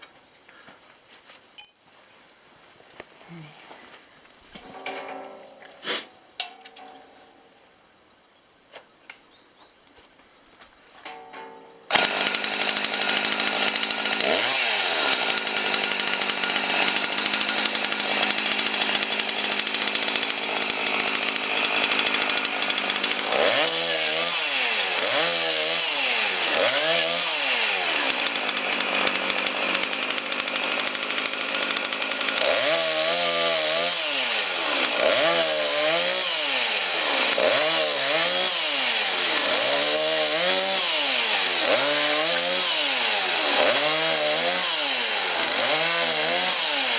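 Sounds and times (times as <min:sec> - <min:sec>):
chainsaw cutting wood: 0:11.8 - 0:46.9.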